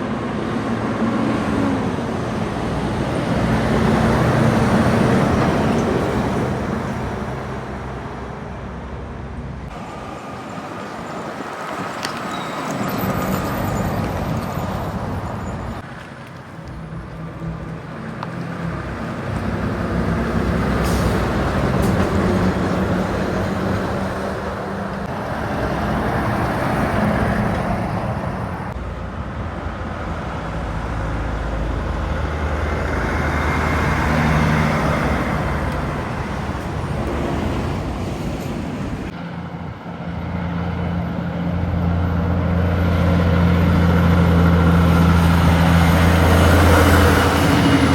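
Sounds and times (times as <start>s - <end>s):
highway traffic passing: 0.0s - 47.9s.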